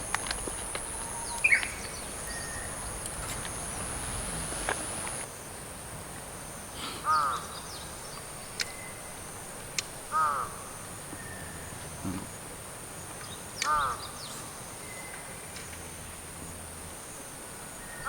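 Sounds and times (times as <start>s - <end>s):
crow cawing: 7.0s - 7.6s, 10.1s - 10.8s, 13.6s - 14.2s.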